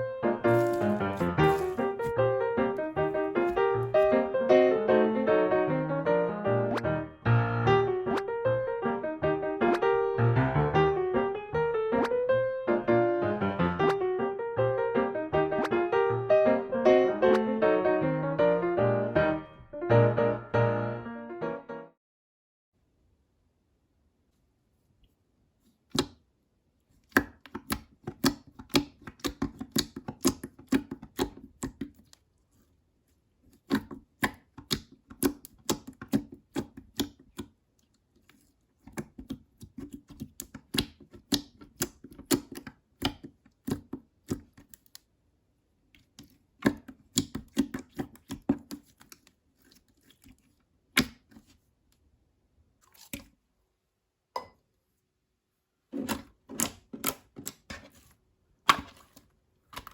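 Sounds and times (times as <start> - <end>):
slime clicking and popping: 27.1 - 32.1, 33.6 - 37.5, 38.9 - 45.0, 46.6 - 49.2.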